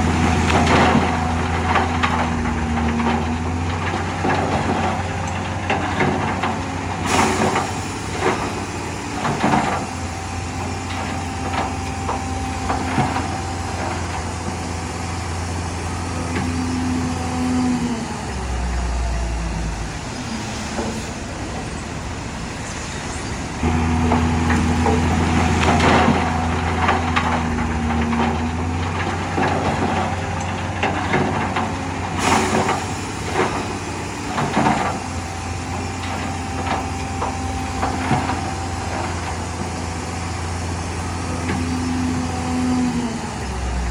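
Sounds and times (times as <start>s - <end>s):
diesel machinery engine drone: 0.0s - 43.9s.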